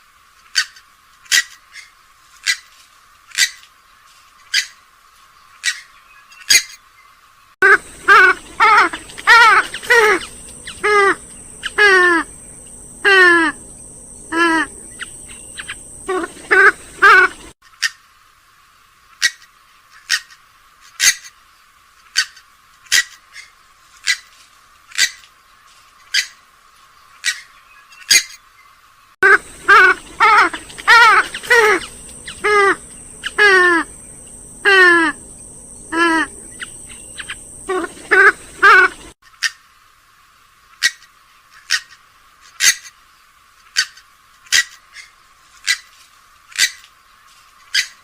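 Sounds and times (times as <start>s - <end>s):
nasal harsh waterbird calls: 7.6s - 17.9s, 29.2s - 39.6s.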